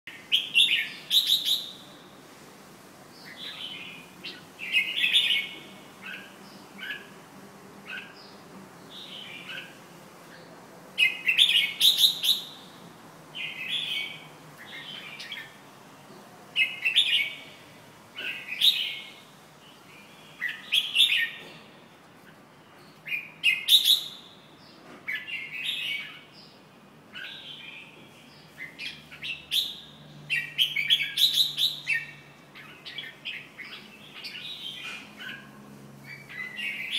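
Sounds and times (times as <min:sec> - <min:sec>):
bird singing chirped whistles: 0:00.3 - 0:01.8, 0:11.0 - 0:12.7, 0:23.1 - 0:24.4, 0:28.9 - 0:32.2.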